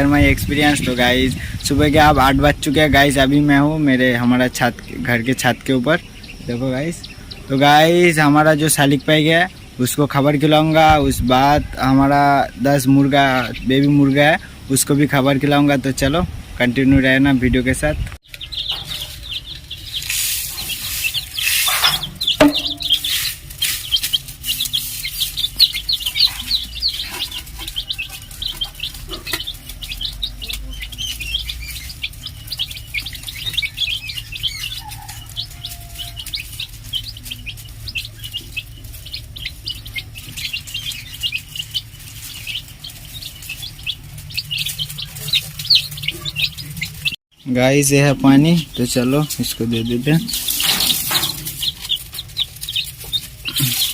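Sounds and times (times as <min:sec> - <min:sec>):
small birds chirping: 0:00.0 - 0:53.9
rustling: 0:18.4 - 0:47.2, 0:48.6 - 0:53.9.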